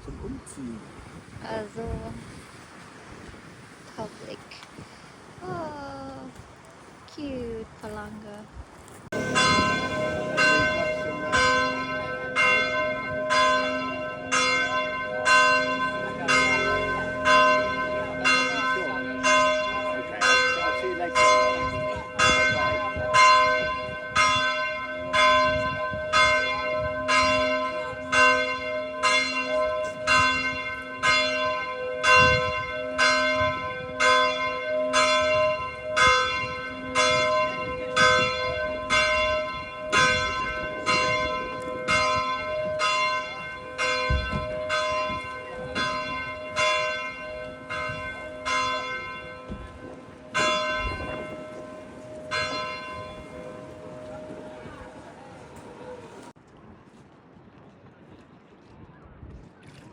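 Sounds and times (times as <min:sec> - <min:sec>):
church bell ringing: 0:09.1 - 0:56.3.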